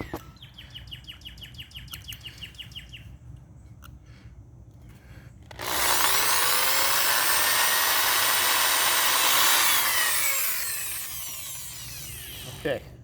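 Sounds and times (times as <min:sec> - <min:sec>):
power drill drilling: 0:05.5 - 0:12.6.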